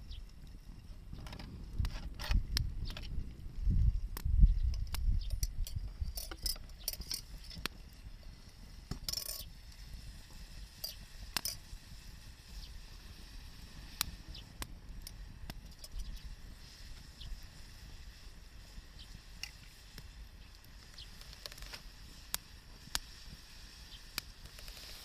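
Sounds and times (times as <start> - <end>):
wood campfire crackling: 0.0 - 25.0
sharp pops and clicks: 0.1 - 7.8, 8.8 - 9.9, 10.7 - 11.7, 13.7 - 16.3, 19.0 - 25.0.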